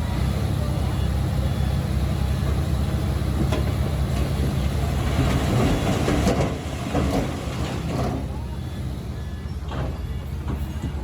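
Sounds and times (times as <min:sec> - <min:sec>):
bulldozer diesel engine running: 0:00.0 - 0:11.0
steel tracks clattering: 0:03.4 - 0:08.3.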